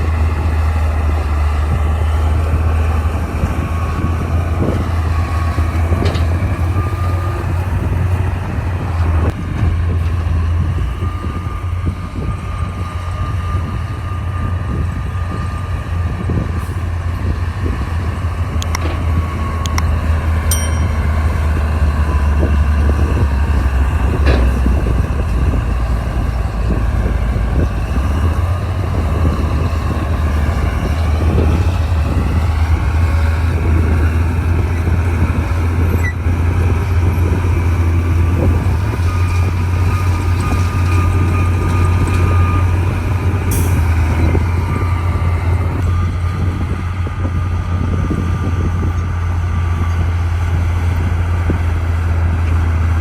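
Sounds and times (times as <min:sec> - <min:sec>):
bulldozer diesel engine droning: 0:00.0 - 0:53.0
metal clanks: 0:20.5 - 0:21.4.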